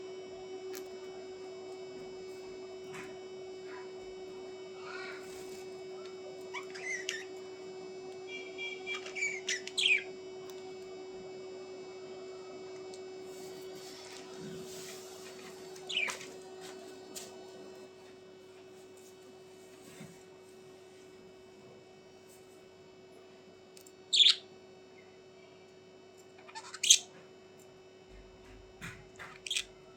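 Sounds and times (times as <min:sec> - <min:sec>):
steady electrical hum: 0:00.0 - 0:29.9
small birds chirping: 0:08.3 - 0:10.1, 0:15.9 - 0:16.2, 0:24.1 - 0:24.4.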